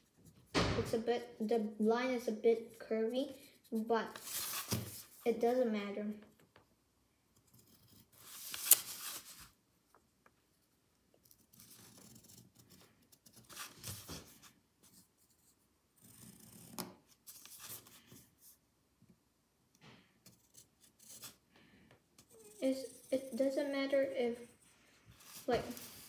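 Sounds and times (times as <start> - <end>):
paper rustling: 4.1 - 5.2, 8.2 - 9.5, 12.8 - 14.6, 25.1 - 26.0
pencil scratching on paper: 11.2 - 18.6, 20.2 - 21.4, 22.2 - 26.0.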